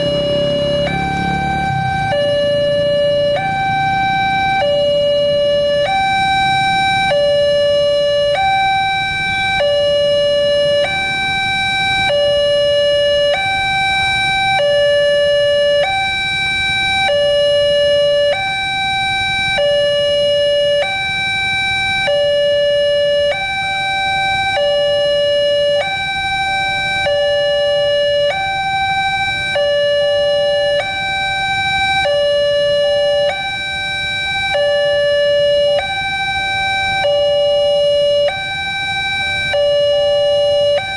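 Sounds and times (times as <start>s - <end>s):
two-tone crossing alarm: 0.0s - 40.9s.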